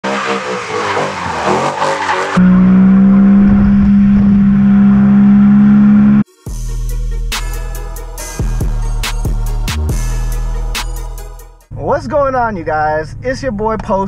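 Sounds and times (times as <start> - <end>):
car engine revving high: 0.0 - 6.3
music: 6.3 - 11.8.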